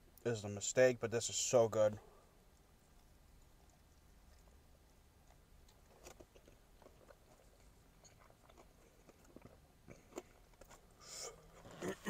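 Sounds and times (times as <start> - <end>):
chewing crispy food: 2.4 - 12.0.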